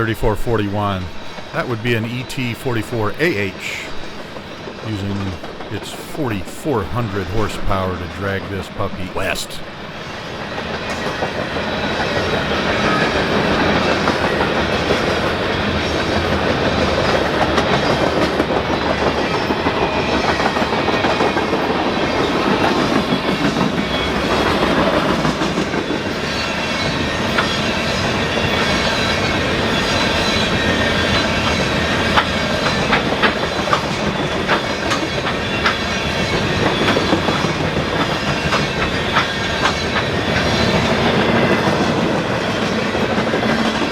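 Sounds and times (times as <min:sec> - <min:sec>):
train wheels clattering on rails: 0:09.7 - 0:43.9.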